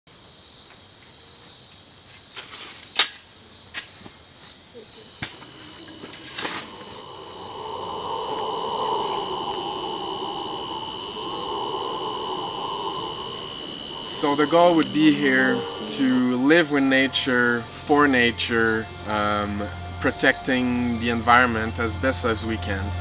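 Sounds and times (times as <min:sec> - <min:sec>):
insects chirring: 0:00.1 - 0:23.0
low steady hum: 0:05.2 - 0:23.0.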